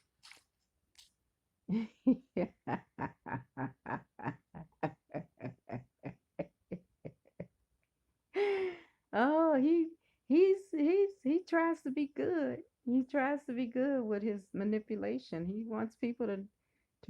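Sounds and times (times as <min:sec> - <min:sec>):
person laughing: 0:01.7 - 0:07.5.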